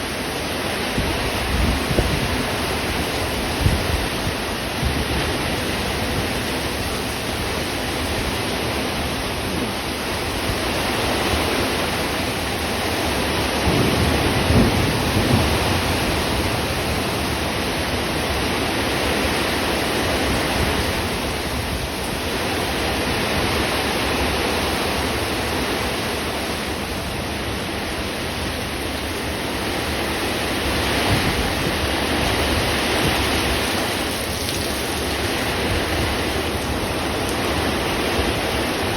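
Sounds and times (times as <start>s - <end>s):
heavy rain: 0.0s - 38.9s
thunder rumbling: 13.2s - 18.8s, 30.4s - 38.9s.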